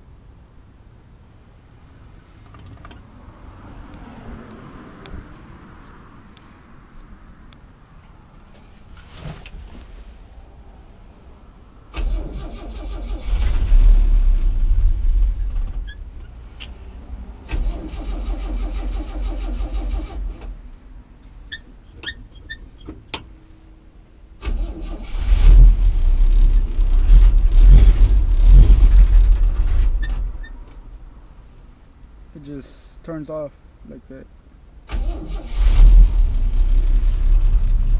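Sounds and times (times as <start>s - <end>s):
misfiring engine starting: 11.9s - 15.9s, 17.4s - 20.6s, 24.4s - 30.3s, 34.9s - 37.9s.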